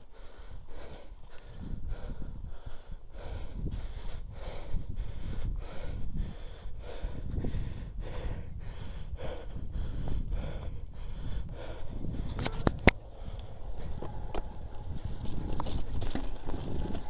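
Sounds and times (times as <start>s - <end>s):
heavy rhythmic breathing: 0.0s - 15.6s
low rumble: 7.1s - 17.0s.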